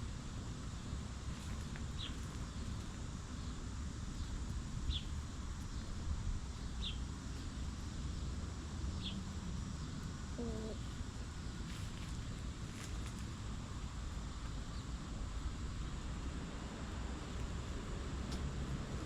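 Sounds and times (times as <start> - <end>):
outdoor background rumble: 0.0 - 19.0
hen clucking: 10.4 - 10.8.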